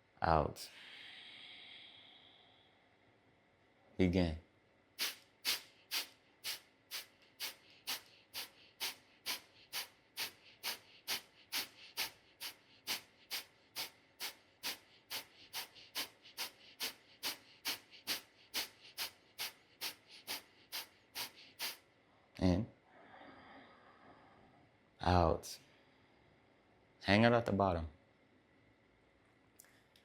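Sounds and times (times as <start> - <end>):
quiet inhales: 0.6 - 3.0, 5.0 - 21.9, 22.9 - 24.7
sharp nasal exhales: 0.7 - 2.8, 5.0 - 21.8.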